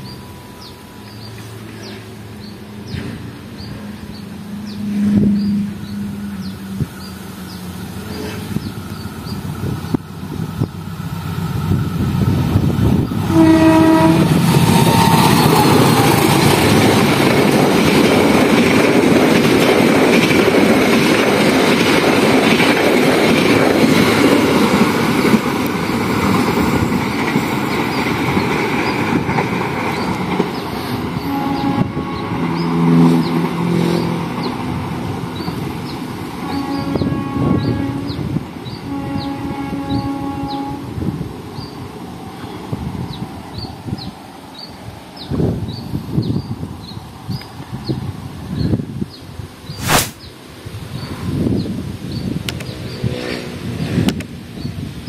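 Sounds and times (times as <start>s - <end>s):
train passing loudly: 0.0s - 55.0s
train horn blast: 4.5s - 6.8s, 13.2s - 16.2s, 31.2s - 34.1s, 36.4s - 41.0s
brief pitched sound: 49.8s - 50.2s.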